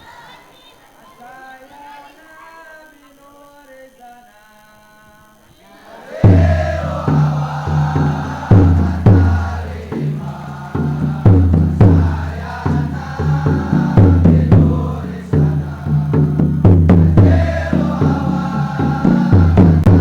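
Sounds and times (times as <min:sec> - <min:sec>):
male choir singing: 0:05.6 - 0:20.0
accented drum beats: 0:06.2 - 0:20.0
low accompaniment: 0:06.3 - 0:20.0.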